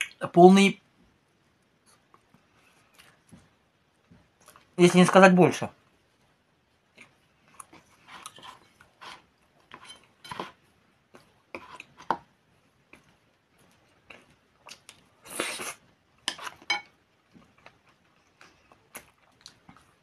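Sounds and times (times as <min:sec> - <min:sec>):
person chewing: 0:06.9 - 0:12.1, 0:12.8 - 0:20.0.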